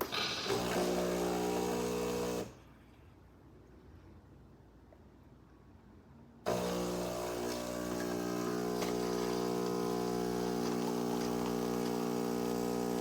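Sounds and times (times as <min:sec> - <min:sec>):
espresso machine pump humming: 0:00.0 - 0:02.5, 0:06.5 - 0:13.0.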